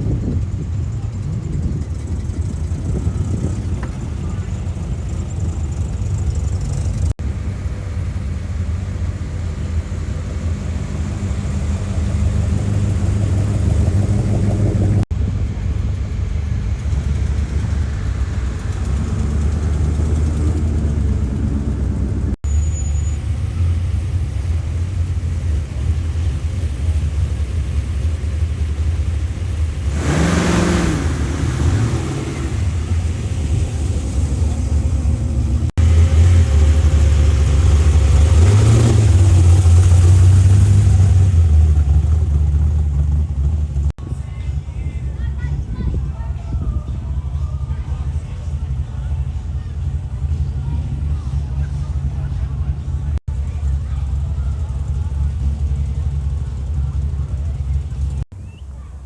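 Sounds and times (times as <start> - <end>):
car engines idling: 0.0 - 59.0
engine revving: 6.1 - 15.1, 16.5 - 22.4, 23.1 - 44.0.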